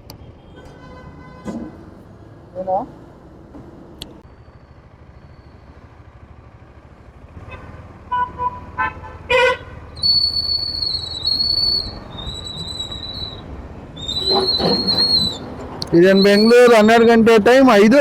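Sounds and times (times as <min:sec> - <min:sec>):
street traffic: 0:00.0 - 0:18.0
vehicle horn toots: 0:00.5 - 0:01.7, 0:07.5 - 0:09.8
long high-pitched whistle: 0:10.0 - 0:13.4.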